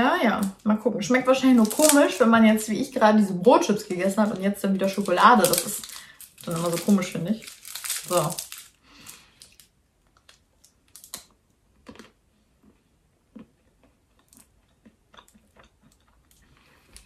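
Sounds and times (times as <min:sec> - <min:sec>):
foil wrapper crackling: 0:01.3 - 0:02.6, 0:03.7 - 0:11.3
quiet chewing: 0:09.1 - 0:17.0.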